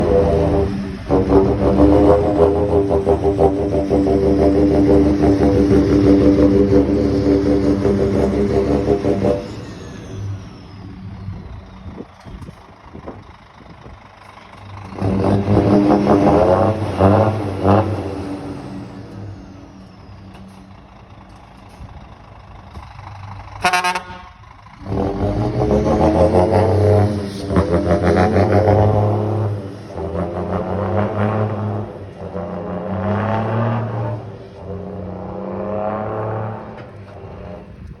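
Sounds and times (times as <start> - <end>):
truck diesel engine revving: 0.0 - 38.0.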